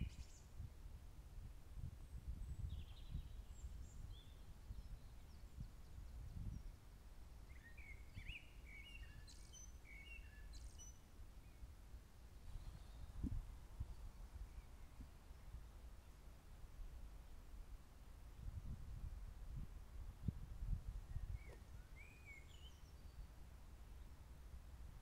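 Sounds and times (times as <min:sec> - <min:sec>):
songbirds chirping: 0:00.0 - 0:00.7, 0:02.0 - 0:18.7, 0:20.8 - 0:25.0
wind rumble on microphone: 0:00.0 - 0:10.9, 0:12.4 - 0:16.0, 0:18.2 - 0:23.3.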